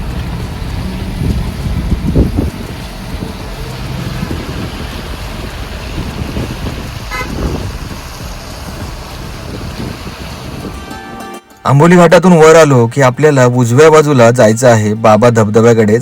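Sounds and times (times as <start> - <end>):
car rumbling on the road: 0.0 - 10.9
car horn toot: 7.1 - 7.6.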